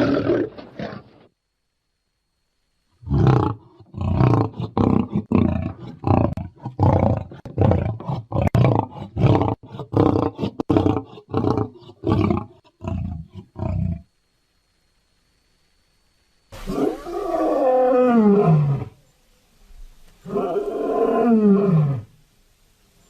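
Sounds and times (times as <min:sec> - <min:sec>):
lion roaring: 0:03.0 - 0:14.1, 0:16.6 - 0:19.0, 0:20.2 - 0:22.1.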